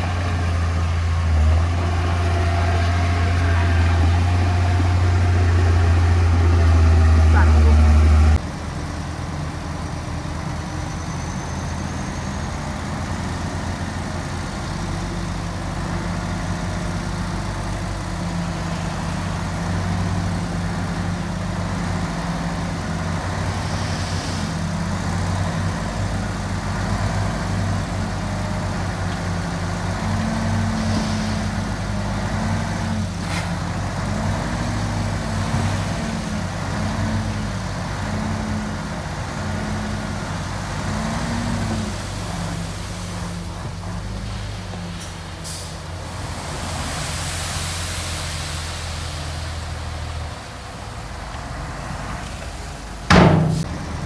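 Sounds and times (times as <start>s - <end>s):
heavy machinery diesel engine: 0.0s - 54.0s
brief knock: 53.1s - 53.9s.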